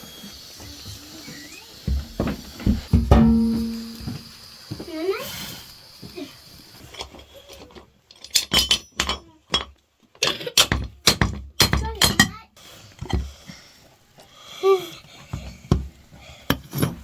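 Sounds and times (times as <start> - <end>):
dishes and utensils clinking: 2.2 - 4.3, 6.8 - 12.4.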